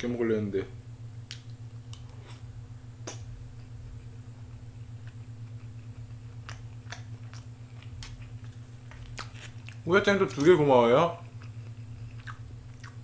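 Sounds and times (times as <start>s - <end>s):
low electrical hum: 0.0s - 13.0s
soft mouth clicks: 1.3s - 2.2s, 3.0s - 3.3s, 5.0s - 9.8s
person chewing food: 1.3s - 10.5s, 11.2s - 13.0s.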